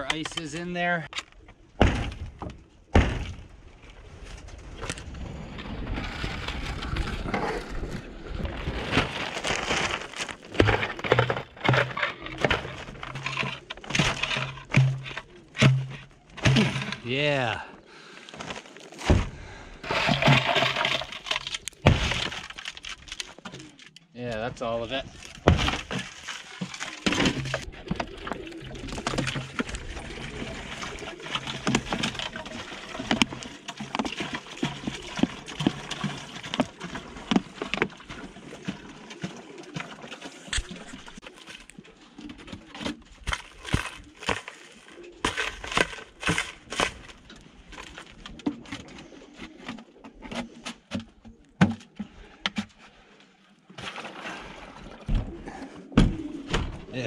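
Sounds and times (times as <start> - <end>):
knocks scuffs and clatter: 8.8 - 17.1, 25.1 - 28.0, 42.4 - 48.8
pigeons cooing: 15.0 - 15.6, 27.0 - 32.2, 43.7 - 46.2, 55.1 - 57.0.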